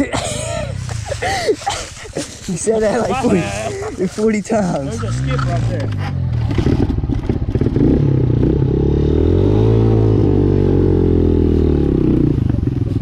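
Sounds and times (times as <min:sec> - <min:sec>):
dirt bike engine revving: 0:04.6 - 0:12.6.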